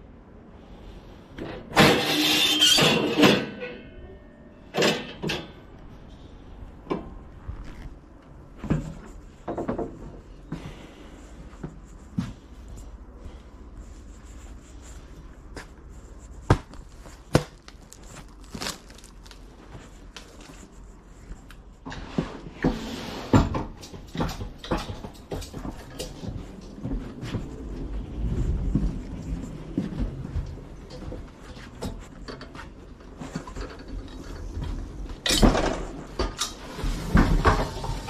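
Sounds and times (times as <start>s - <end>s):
low steady rumble: 25.1s - 35.2s.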